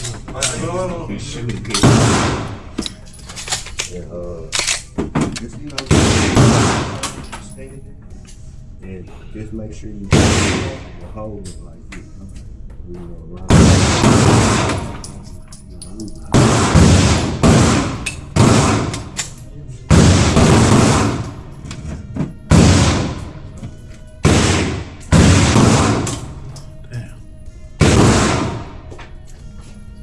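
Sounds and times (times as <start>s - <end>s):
pistol shots echoing: 1.8s - 2.8s, 5.8s - 7.2s, 10.1s - 11.0s, 13.5s - 15.0s, 16.3s - 21.5s, 22.5s - 23.4s, 24.2s - 26.5s, 27.8s - 28.8s.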